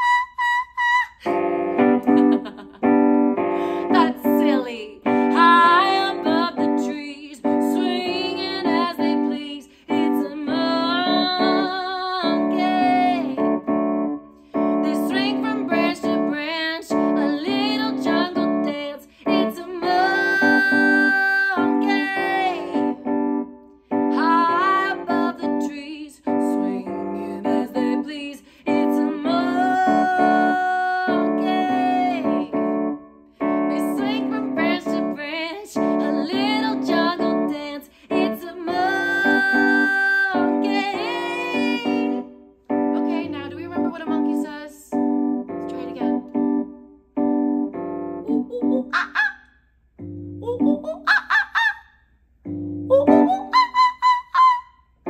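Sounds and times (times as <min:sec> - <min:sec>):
piano chords: 0:01.2 - 0:49.2, 0:50.0 - 0:51.1, 0:52.4 - 0:53.9
woman singing: 0:03.7 - 0:13.6, 0:14.7 - 0:23.1, 0:24.1 - 0:32.6, 0:33.5 - 0:42.4, 0:43.0 - 0:45.0, 0:45.7 - 0:46.2, 0:48.3 - 0:49.2, 0:50.4 - 0:51.1, 0:52.9 - 0:54.6.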